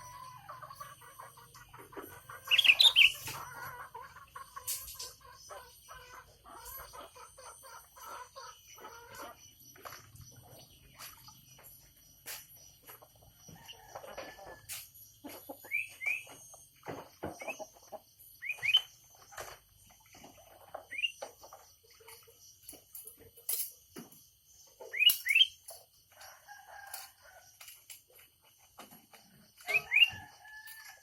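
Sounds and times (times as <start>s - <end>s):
birds chirping: 0.0s - 13.8s, 15.0s - 22.7s, 24.2s - 25.7s.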